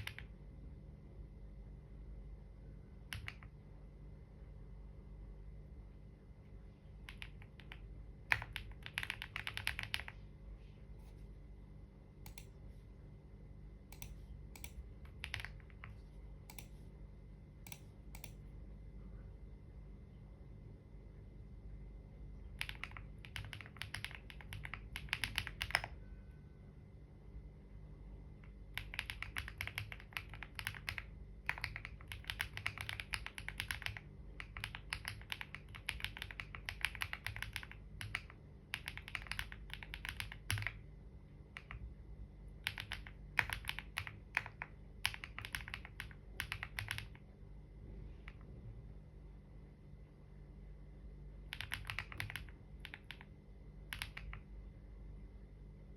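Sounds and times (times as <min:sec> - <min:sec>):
keyboard typing: 0:00.0 - 0:00.4, 0:03.0 - 0:03.6, 0:07.0 - 0:10.2, 0:12.2 - 0:12.6, 0:13.9 - 0:16.9, 0:17.6 - 0:18.4, 0:22.4 - 0:26.0, 0:28.4 - 0:40.8, 0:41.5 - 0:41.9, 0:42.6 - 0:47.3, 0:51.4 - 0:54.5
low steady hum: 0:00.0 - 0:55.9.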